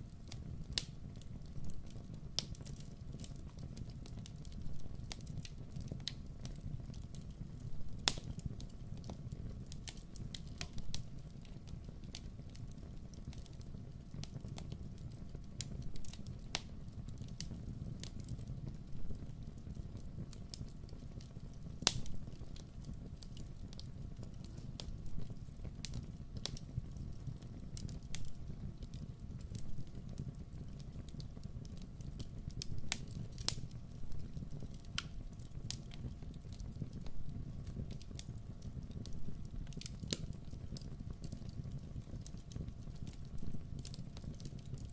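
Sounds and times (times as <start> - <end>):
fire crackling in fireplace: 0.0 - 44.9
sharp pops and snaps: 8.0 - 8.4, 21.8 - 22.3.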